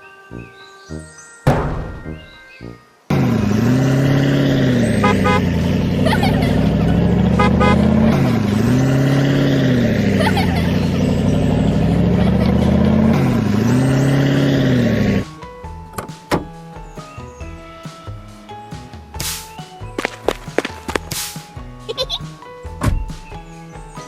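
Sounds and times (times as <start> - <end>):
vehicle engine running: 3.1 - 15.8.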